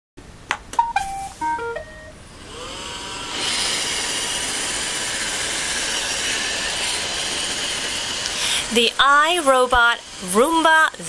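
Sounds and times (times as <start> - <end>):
robot vacuum whirring: 2.3 - 11.0.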